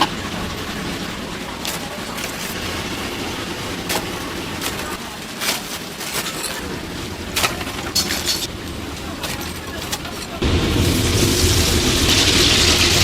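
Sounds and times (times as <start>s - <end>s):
chicken sizzling in oil: 10.4s - 13.0s.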